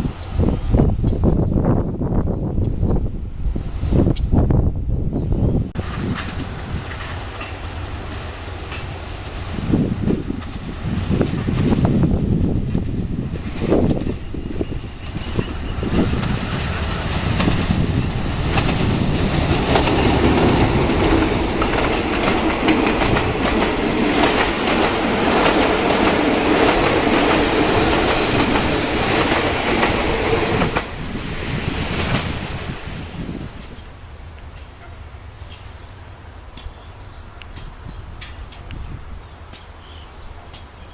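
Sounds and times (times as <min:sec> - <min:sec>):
train wheels clattering: 0:05.8 - 0:09.4, 0:12.6 - 0:31.0, 0:37.6 - 0:38.7.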